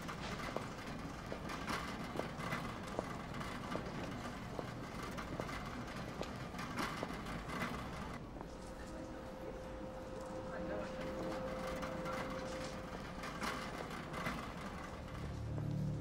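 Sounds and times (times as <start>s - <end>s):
street traffic noise: 0.0s - 16.0s.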